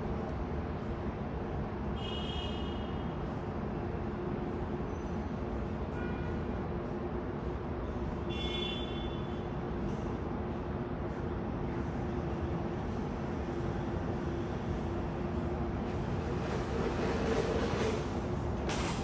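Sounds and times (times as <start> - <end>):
airport machinery rumbling: 15.1 - 19.0.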